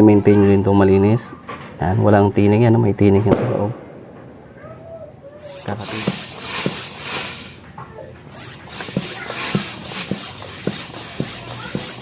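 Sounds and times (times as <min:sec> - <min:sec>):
hissing bursts of air: 0:05.3 - 0:12.0.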